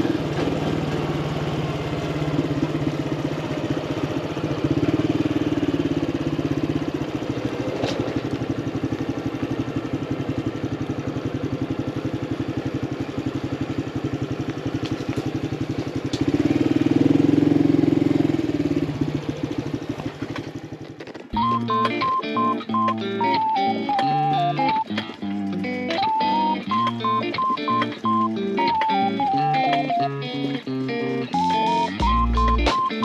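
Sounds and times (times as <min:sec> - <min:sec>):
motorcycle engine running: 0:00.0 - 0:21.6
guitar music: 0:21.4 - 0:33.0.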